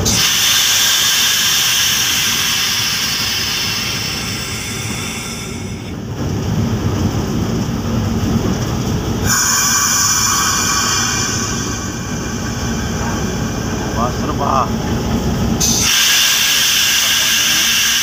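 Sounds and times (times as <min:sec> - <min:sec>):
locomotive rumble: 0:00.0 - 0:18.0
high-pitched wheel squeal: 0:09.2 - 0:13.7.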